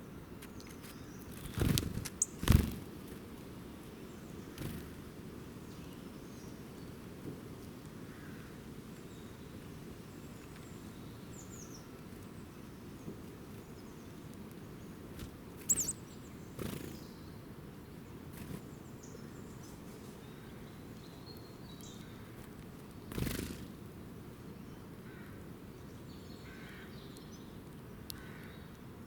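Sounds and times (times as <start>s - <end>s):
faint high bird chirps: 15.6s - 17.2s.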